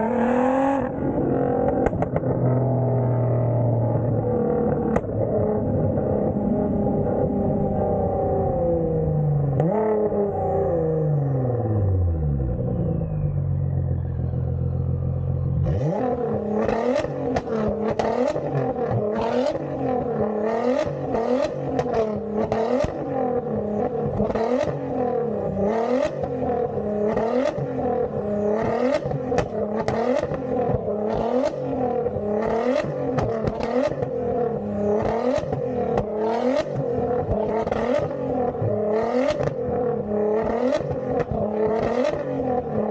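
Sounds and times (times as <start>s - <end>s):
car engine revving: 0.0s - 42.9s
exhaust crackles and pops: 1.6s - 2.7s.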